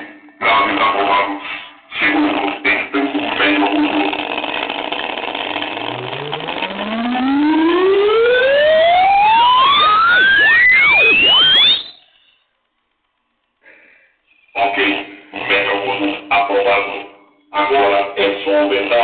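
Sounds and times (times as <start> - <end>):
music from small speaker: 0.0 - 12.1, 14.6 - 19.0
rising test tone sweep: 5.8 - 12.1.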